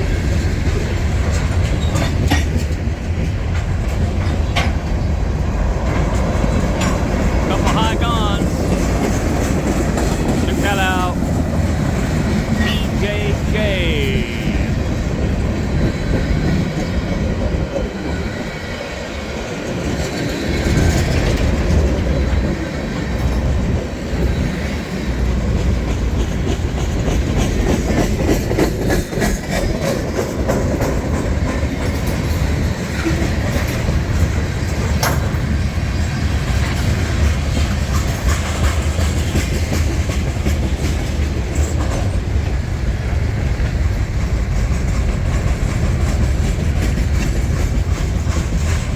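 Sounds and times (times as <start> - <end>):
train rumble: 0.0 - 48.9
freight train wheels clicking: 18.9 - 48.9.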